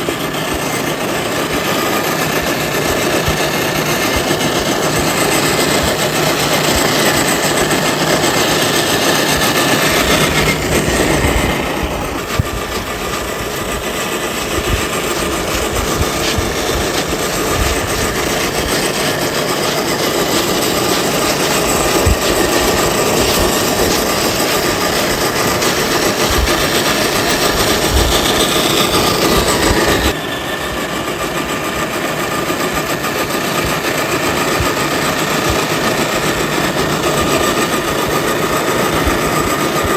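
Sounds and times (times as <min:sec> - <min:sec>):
electric motor and gears whirring: 0:00.0 - 0:39.9.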